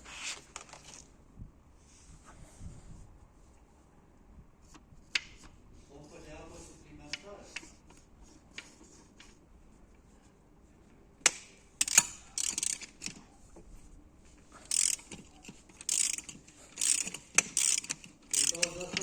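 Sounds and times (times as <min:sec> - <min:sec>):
sharp metal clicks: 0:11.2 - 0:13.2, 0:14.7 - 0:19.0
ratchet wrench ratcheting: 0:11.8 - 0:13.2, 0:14.6 - 0:19.0.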